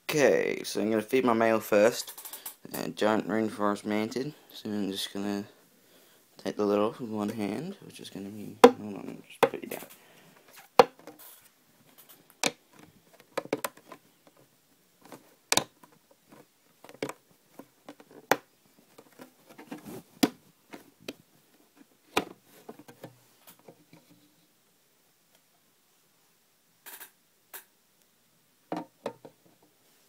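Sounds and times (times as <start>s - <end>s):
faint rustling: 1.7s - 24.6s.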